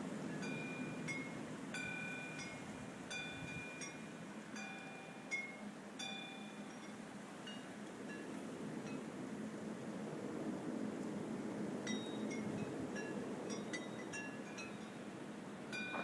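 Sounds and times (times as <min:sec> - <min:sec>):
low rushing wind: 0:08.4 - 0:16.0.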